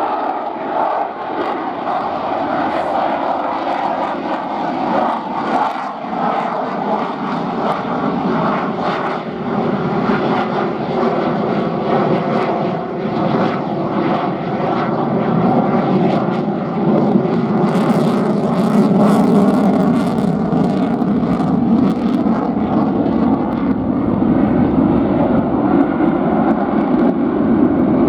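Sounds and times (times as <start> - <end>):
fighter jet engines roaring: 0.0 - 28.0.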